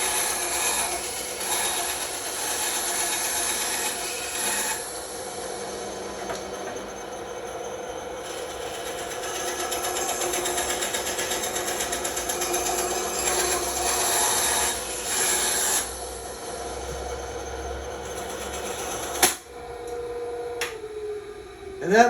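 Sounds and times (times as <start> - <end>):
bandsaw cutting wood: 0.0 - 6.5, 8.2 - 16.6.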